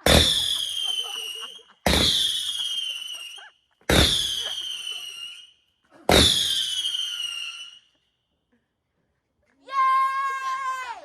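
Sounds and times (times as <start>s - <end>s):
whistling fireworks: 0.0s - 8.1s
firework pops: 1.9s - 2.2s, 6.1s - 6.5s.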